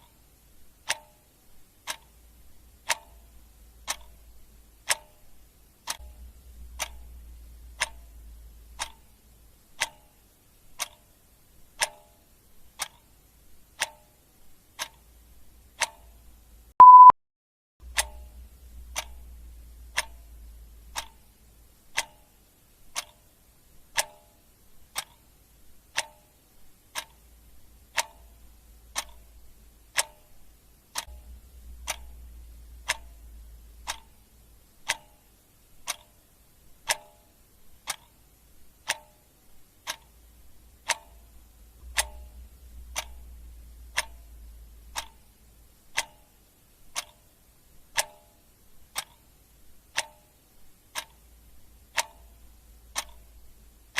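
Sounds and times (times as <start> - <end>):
clock ticking: 0.0 - 17.1, 17.8 - 53.9
faint low rumble: 1.5 - 11.8, 17.8 - 22.9, 24.8 - 36.9, 37.6 - 47.0, 50.6 - 53.9.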